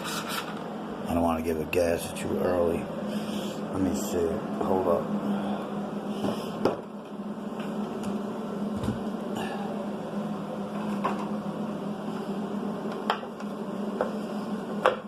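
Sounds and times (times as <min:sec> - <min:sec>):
small cooling fan whirring: 0:00.0 - 0:15.0.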